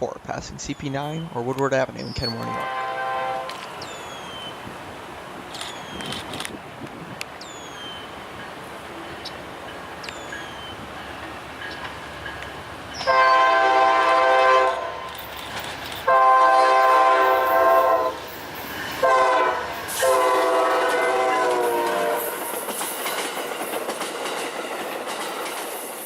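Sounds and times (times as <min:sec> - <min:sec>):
locomotive horn blasts: 0:02.4 - 0:03.6, 0:13.1 - 0:15.0, 0:16.1 - 0:18.2, 0:19.0 - 0:22.4
train wheels clattering: 0:08.2 - 0:14.1, 0:15.0 - 0:16.2, 0:16.8 - 0:26.0.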